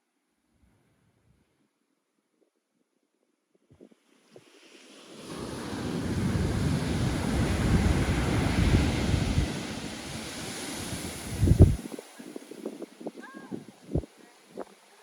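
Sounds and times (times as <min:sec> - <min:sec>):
ocean wave breaking: 0:04.3 - 0:15.0
wind buffeting microphone: 0:05.5 - 0:15.0.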